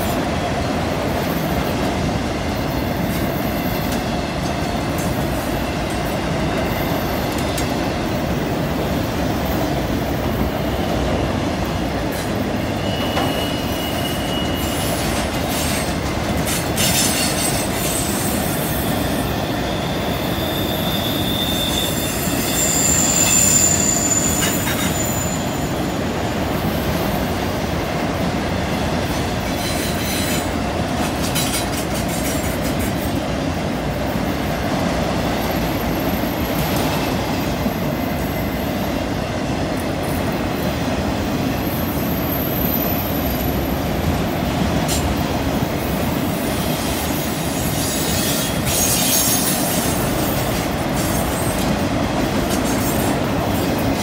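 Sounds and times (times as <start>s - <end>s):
train wheels rumbling on rail: 0.0s - 54.0s
wheel flange squeals: 12.6s - 15.9s, 16.5s - 26.0s, 47.5s - 51.8s.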